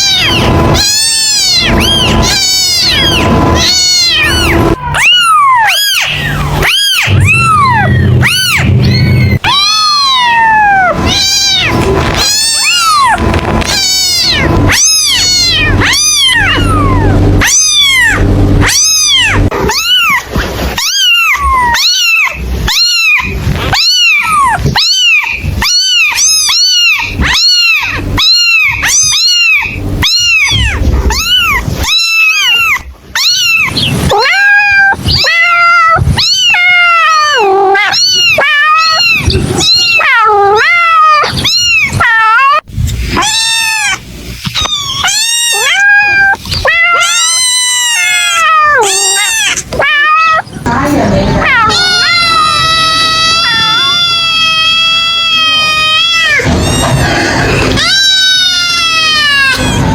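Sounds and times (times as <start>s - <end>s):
low steady hum: 0.0s - 34.2s
kittens meowing: 0.0s - 59.9s.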